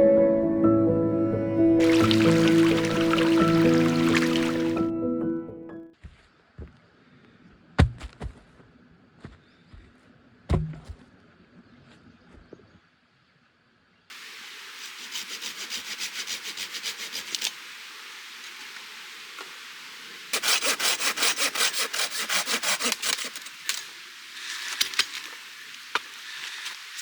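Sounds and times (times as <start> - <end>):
hand saw cutting wood: 14.8 - 17.6, 20.3 - 25.3.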